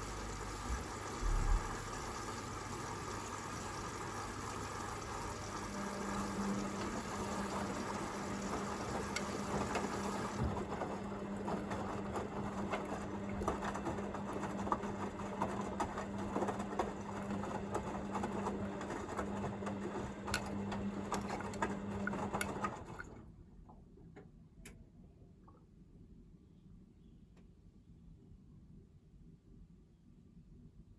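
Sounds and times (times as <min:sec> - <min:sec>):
washing machine motor hum: 0:00.0 - 0:23.4
water sloshing: 0:20.4 - 0:23.1.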